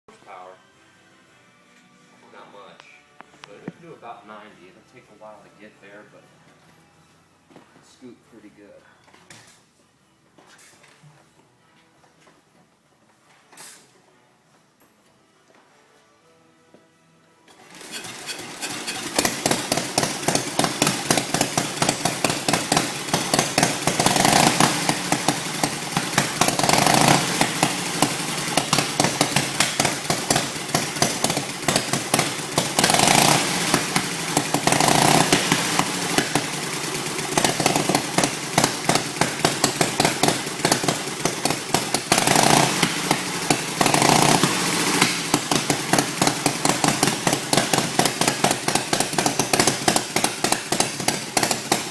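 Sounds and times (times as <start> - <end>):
motorcycle engine popping and revving: 17.5 - 51.9.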